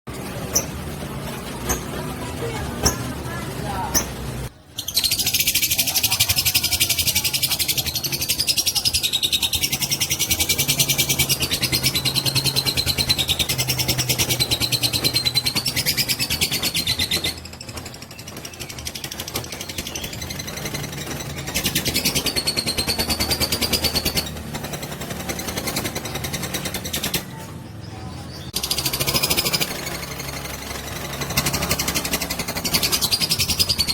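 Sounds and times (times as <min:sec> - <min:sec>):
lovebird chattering trill: 0:04.7 - 0:17.7.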